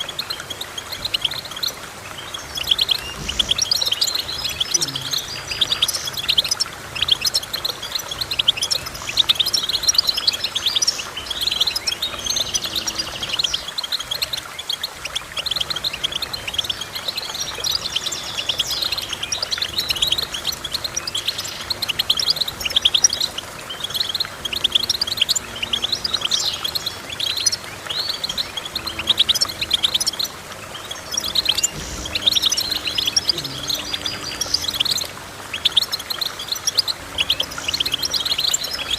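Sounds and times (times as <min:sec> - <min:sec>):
songbird twittering: 0:00.0 - 0:38.9.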